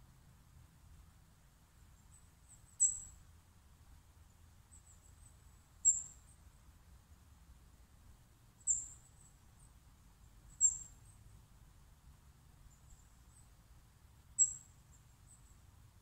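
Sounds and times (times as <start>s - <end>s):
bird high-pitched chirps: 2.2s - 3.2s, 5.8s - 6.3s, 8.6s - 9.3s, 10.5s - 11.0s, 14.4s - 15.5s.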